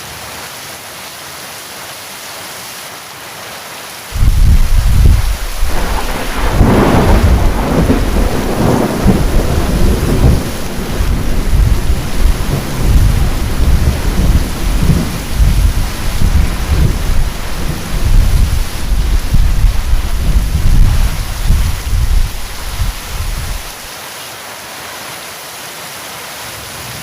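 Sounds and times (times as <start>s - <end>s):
heavy rain: 0.0s - 27.0s
thunder clap and rumbling: 4.2s - 23.9s.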